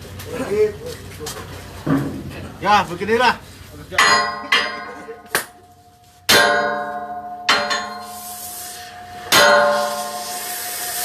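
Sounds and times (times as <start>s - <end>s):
hammer striking steel: 3.9s - 5.6s, 6.2s - 10.5s.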